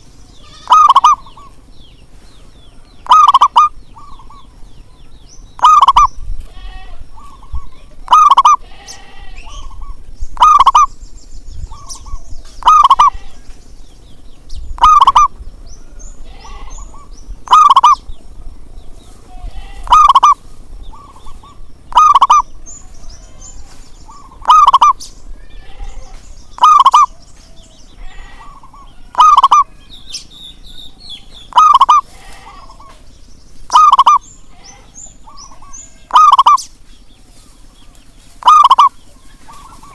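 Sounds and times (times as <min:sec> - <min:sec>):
dove cooing: 0:00.0 - 0:01.5, 0:03.0 - 0:04.5, 0:05.6 - 0:06.1, 0:07.2 - 0:08.6, 0:09.4 - 0:10.9, 0:11.7 - 0:13.3, 0:14.8 - 0:15.4, 0:16.4 - 0:18.0, 0:19.8 - 0:23.4, 0:24.1 - 0:25.0, 0:25.8 - 0:27.3, 0:28.0 - 0:29.8, 0:31.5 - 0:33.0, 0:33.7 - 0:36.6, 0:38.4 - 0:39.9
faint bird chirps: 0:00.0 - 0:39.9.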